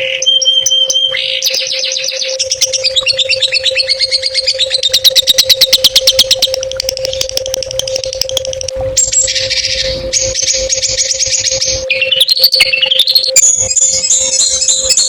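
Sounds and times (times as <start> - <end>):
steady low hum: 0.0 - 15.0
songbird trilling and chattering: 0.2 - 15.0.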